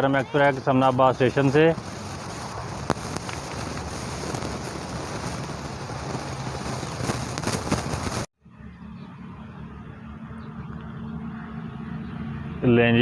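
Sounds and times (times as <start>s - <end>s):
train wheels on rails: 0.0s - 8.3s
sharp clicks: 0.4s - 8.3s.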